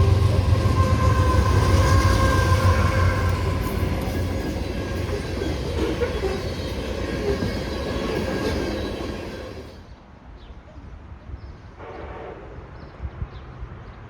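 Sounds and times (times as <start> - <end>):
train wheels rumbling on rails: 0.0 - 9.9.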